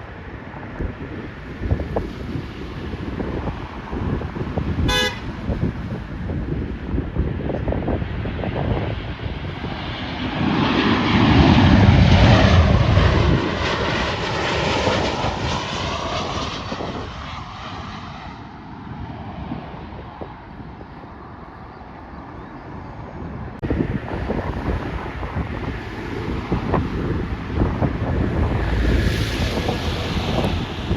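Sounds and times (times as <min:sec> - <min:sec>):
jet engine rumble: 0:00.0 - 0:30.9
wind buffeting microphone: 0:00.0 - 0:30.9
jet sweeping whoosh: 0:25.6 - 0:30.9.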